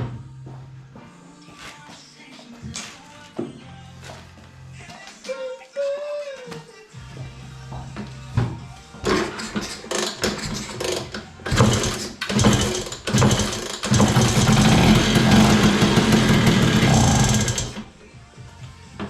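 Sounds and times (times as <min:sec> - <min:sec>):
scooter engine starting and running: 0:09.1 - 0:17.8.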